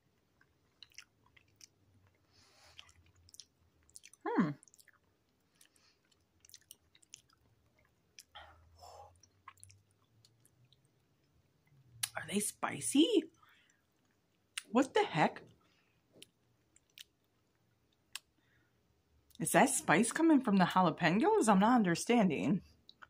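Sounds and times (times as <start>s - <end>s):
person chewing with wet clicks: 0.0s - 12.2s, 13.3s - 14.7s, 15.4s - 18.4s.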